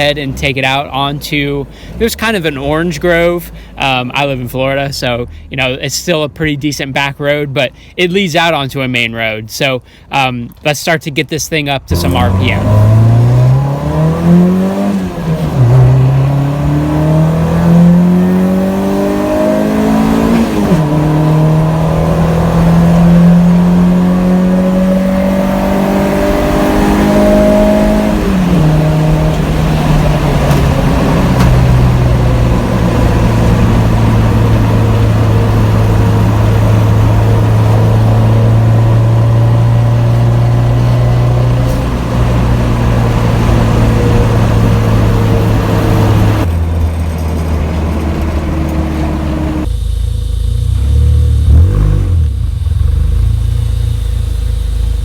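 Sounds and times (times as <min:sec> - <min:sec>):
car engine accelerating hard: 0:11.8 - 0:55.0.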